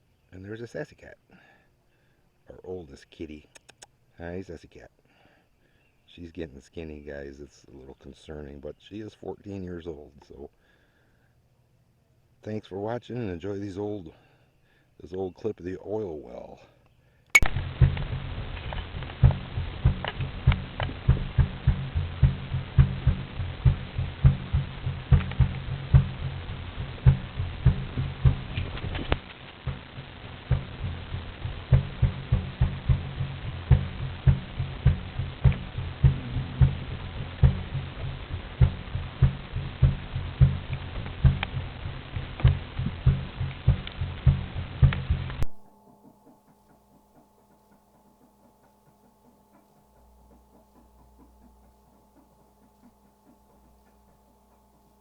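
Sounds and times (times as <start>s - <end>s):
faint clicks: 3.5s - 4.0s
oil well low thumping pulse: 17.4s - 55.0s
pump engine chugging: 17.6s - 55.0s.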